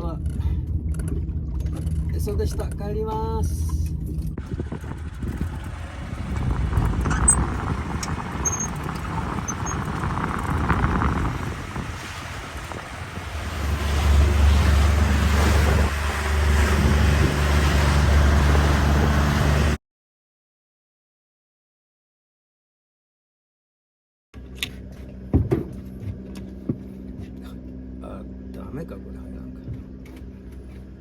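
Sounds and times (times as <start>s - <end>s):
outboard motor running: 0.0s - 19.8s, 24.4s - 31.0s
water noise: 0.0s - 19.8s
wind buffeting microphone: 3.8s - 19.8s.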